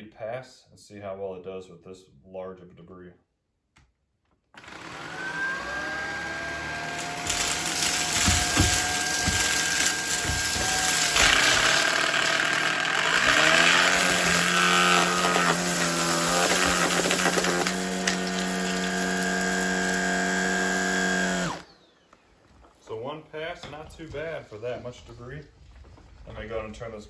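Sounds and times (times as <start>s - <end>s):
stick vacuum motor whine: 4.6s - 22.2s
debris knocking in vacuum: 6.5s - 21.6s.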